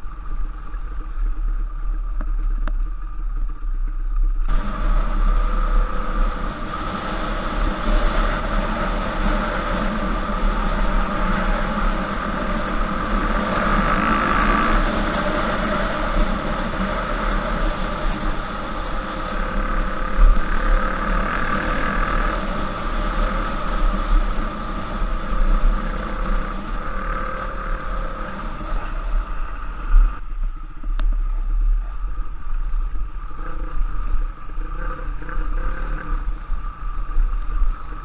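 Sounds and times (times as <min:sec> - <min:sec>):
motorbike engine running: 0:04.4 - 0:30.2.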